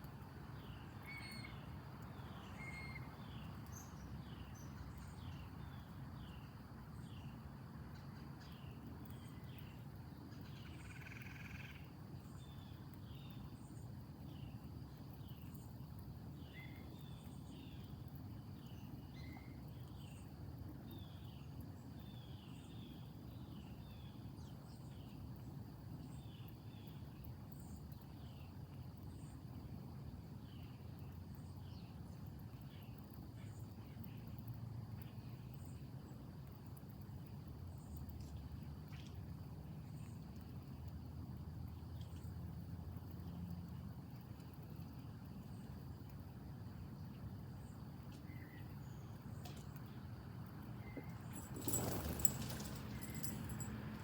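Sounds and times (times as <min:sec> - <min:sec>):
insect chirps: 0:00.1 - 0:54.0
insects trilling: 0:09.2 - 0:18.0
higher insect calls: 0:10.4 - 0:14.5, 0:50.8 - 0:54.0.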